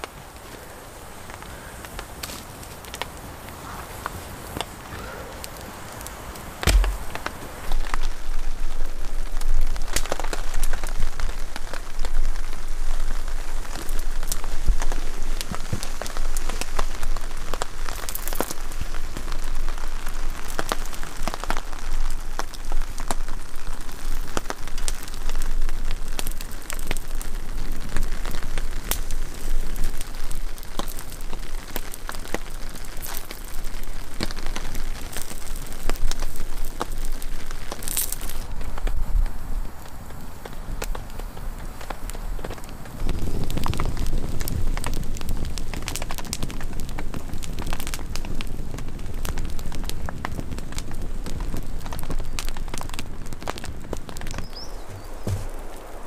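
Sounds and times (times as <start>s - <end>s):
heavy rain: 0.0s - 56.0s
sharp raindrop impacts: 4.6s - 18.6s, 51.9s - 56.0s.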